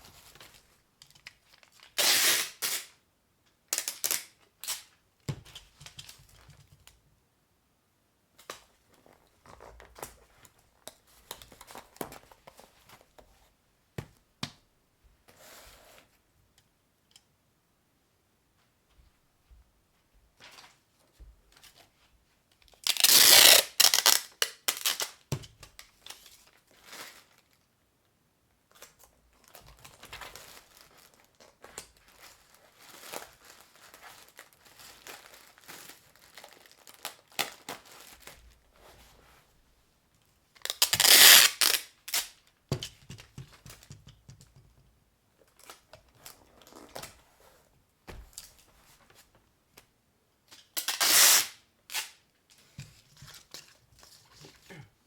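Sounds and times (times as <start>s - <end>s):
packing material tearing: 1.8s - 3.0s, 3.8s - 4.9s, 22.8s - 25.2s, 40.7s - 42.4s, 50.7s - 52.2s
crinkling and rustling: 4.0s - 7.1s, 8.3s - 14.3s, 19.9s - 24.2s, 28.7s - 39.6s, 40.2s - 50.8s, 52.4s - 55.0s.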